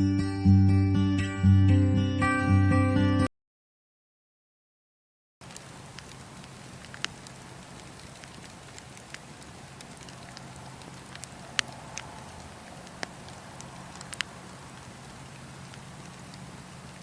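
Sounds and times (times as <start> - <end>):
burning wood crackling and popping: 5.4 - 17.0
campfire hissing: 5.4 - 17.0.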